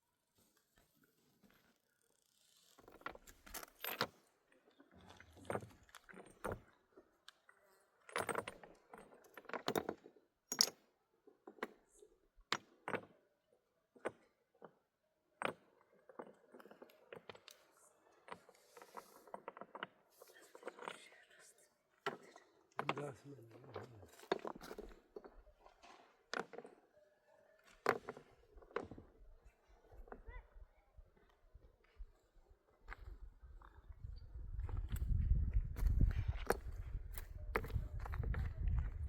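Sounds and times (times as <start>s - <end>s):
objects clinking and knocking: 8.1s - 11.9s.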